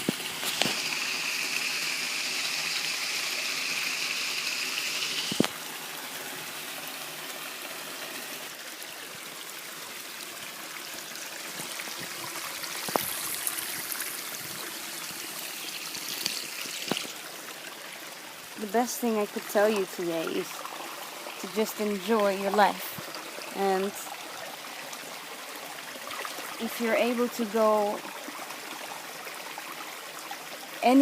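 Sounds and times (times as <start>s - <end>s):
mountain stream rushing: 0.0s - 31.0s.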